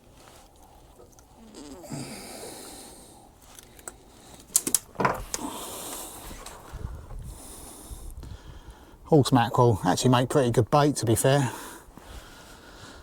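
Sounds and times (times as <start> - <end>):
low breathy sounds: 0.6 - 4.5.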